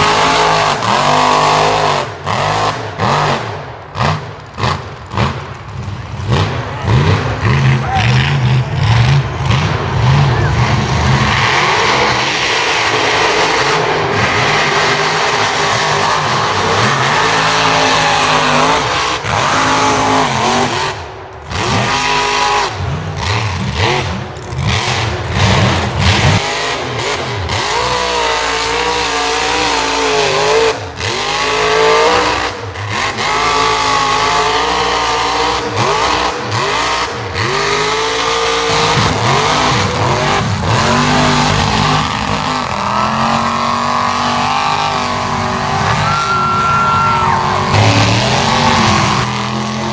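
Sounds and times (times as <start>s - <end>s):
truck engine revving: 0.0s - 49.9s.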